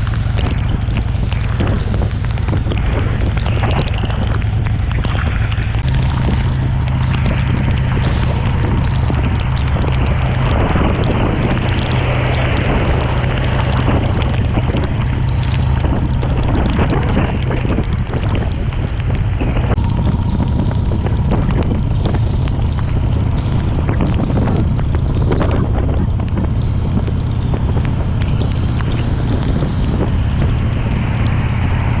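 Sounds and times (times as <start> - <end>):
motorcycle engine drone: 0.0 - 32.0
raindrops ticking: 0.0 - 32.0
wind buffeting microphone: 0.0 - 32.0.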